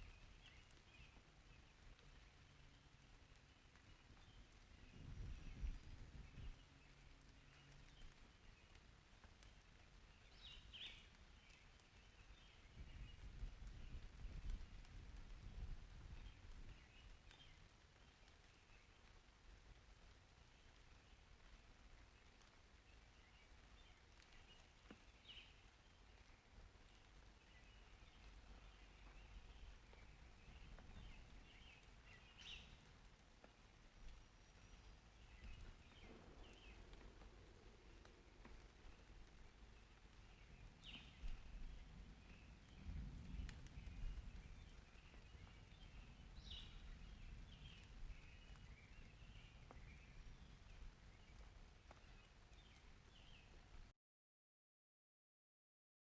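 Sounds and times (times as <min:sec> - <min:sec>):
birds chirping: 0:33.6 - 0:53.7.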